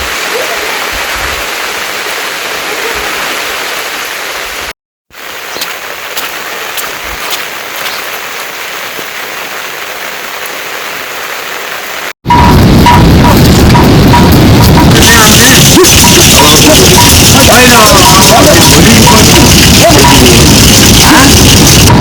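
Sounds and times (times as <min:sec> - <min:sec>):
heavy rain: 0:00.0 - 0:22.0.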